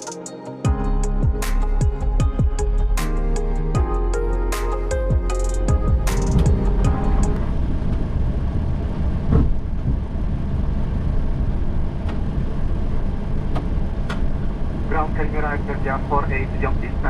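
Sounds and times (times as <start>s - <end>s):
aircraft engines idling: 6.1s - 17.0s.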